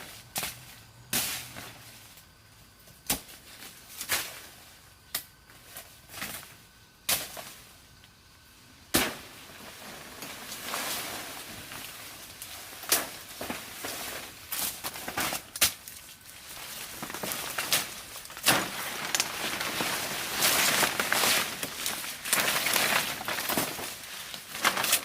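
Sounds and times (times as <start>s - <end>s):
rustling and scraping: 9.5s - 25.0s.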